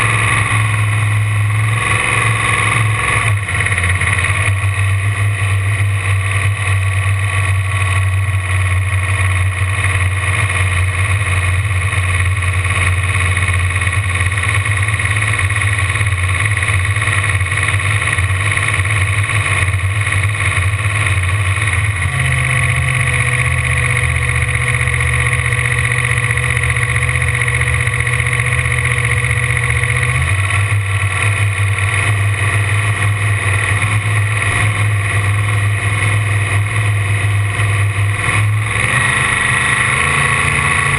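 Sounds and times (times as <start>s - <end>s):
boat engine running: 0.0s - 40.9s.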